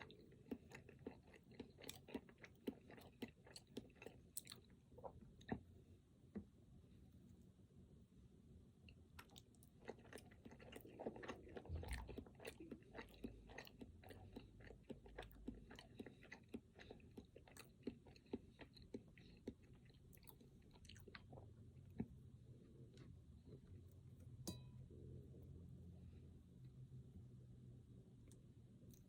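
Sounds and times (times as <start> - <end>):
close-miked chewing: 0.0 - 6.5, 8.8 - 24.1.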